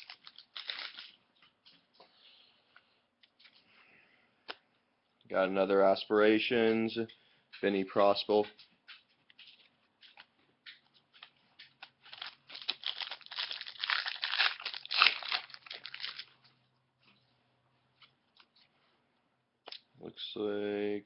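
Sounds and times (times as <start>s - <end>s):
wrapper crinkling and tearing: 0.0s - 1.2s, 11.8s - 16.5s
small rustles and clicks: 6.6s - 14.8s.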